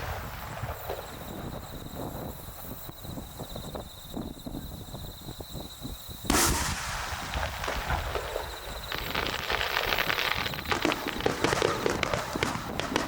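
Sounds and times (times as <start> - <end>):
crackle of small firework bursts: 0.0 - 4.2, 6.3 - 13.0
firework shell bang: 6.3 - 9.3.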